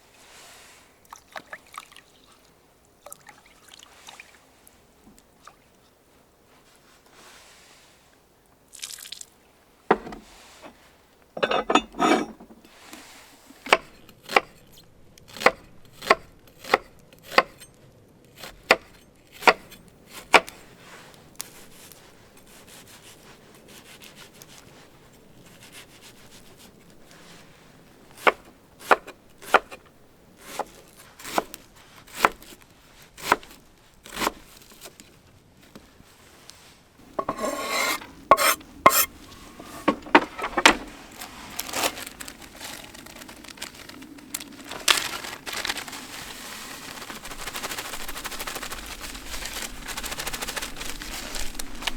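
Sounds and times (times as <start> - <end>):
knife chopping on wooden board: 37.2 - 40.2.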